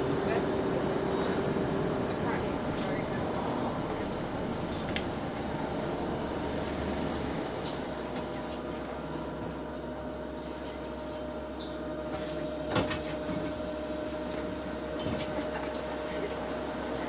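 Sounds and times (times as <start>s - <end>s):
engine and road noise: 0.0s - 8.6s
bus cooling fan whine: 0.0s - 17.0s.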